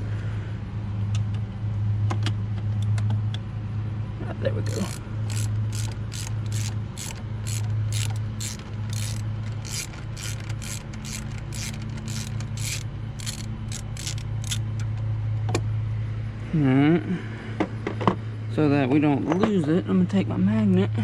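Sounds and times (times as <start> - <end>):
steady low hum: 0.0 - 21.0
ratchet wrench clicking: 4.6 - 15.0.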